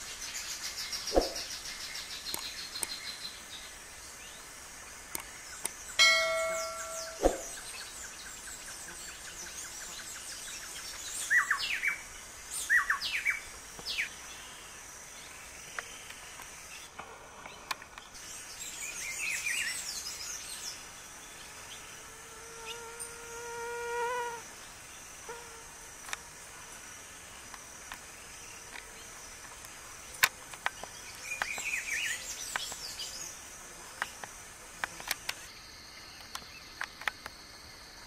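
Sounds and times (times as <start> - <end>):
birds calling: 5.2 - 9.0
high bird chirps: 6.0 - 7.8.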